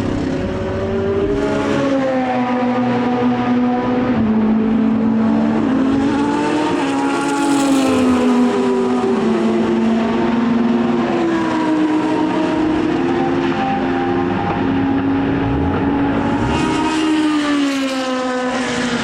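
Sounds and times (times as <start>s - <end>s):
racing car engine passing: 14.1s - 19.0s.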